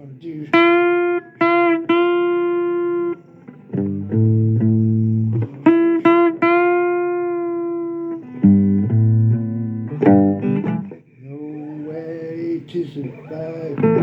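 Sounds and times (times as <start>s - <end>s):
blues guitar riff: 0.0s - 14.0s
person singing: 2.8s - 8.4s, 11.2s - 14.0s.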